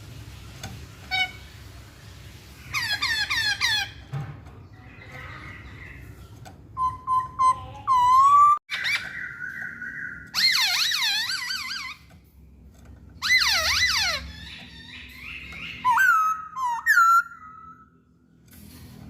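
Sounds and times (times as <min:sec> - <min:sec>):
bird singing whistled phrases: 0:06.8 - 0:10.8, 0:15.4 - 0:17.9.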